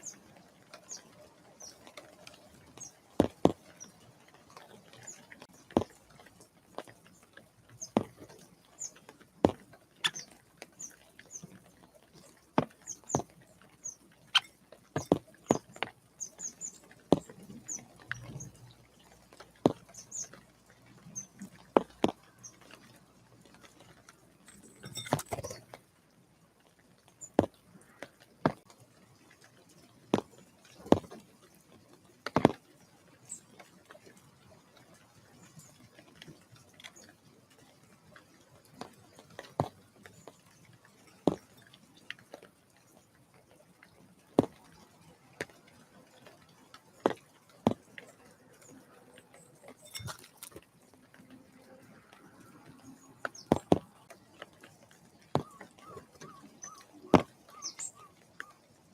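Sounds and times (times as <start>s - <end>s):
small birds calling: 0.0s - 25.6s, 54.4s - 58.7s.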